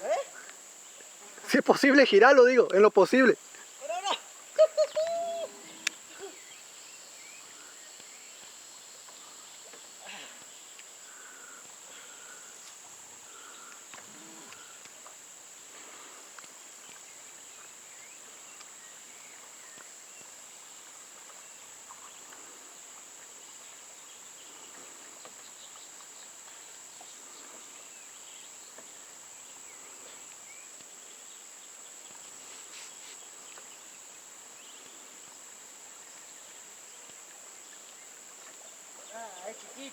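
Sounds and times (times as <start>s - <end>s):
insects chorus: 0.0s - 39.9s
faint chirps: 3.0s - 14.9s.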